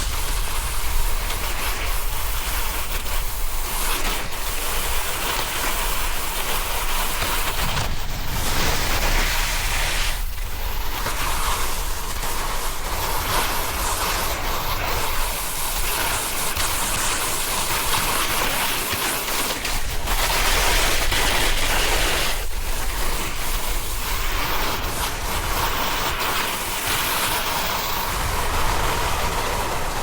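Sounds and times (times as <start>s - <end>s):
wind rumble on microphone: 0.0s - 18.3s, 19.8s - 30.0s
snowboard sliding on snow: 0.0s - 30.0s.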